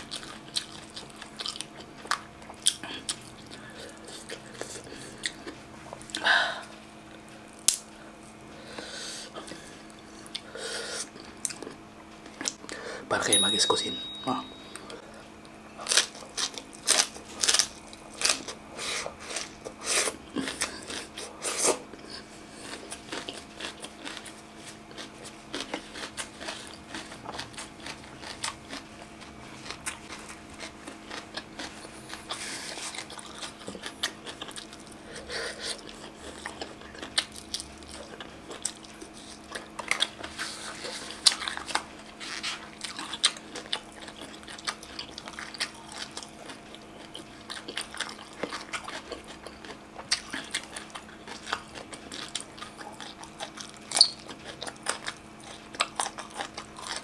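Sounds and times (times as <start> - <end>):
crunching leafy greens: 15.8 - 19.7.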